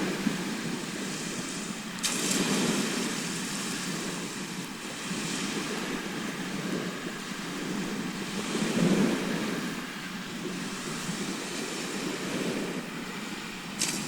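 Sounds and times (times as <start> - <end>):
sea waves washing onto shore: 0.0 - 14.0.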